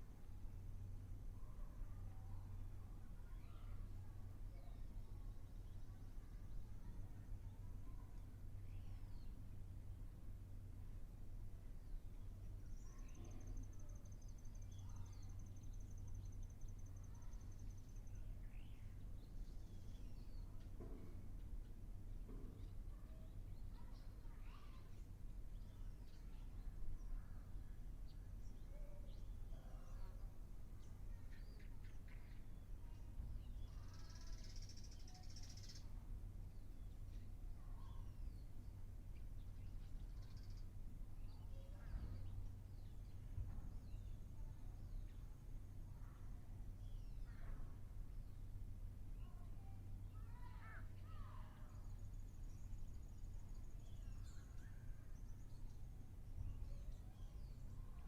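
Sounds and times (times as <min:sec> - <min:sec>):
birds chirping: 0:12.0 - 0:48.5.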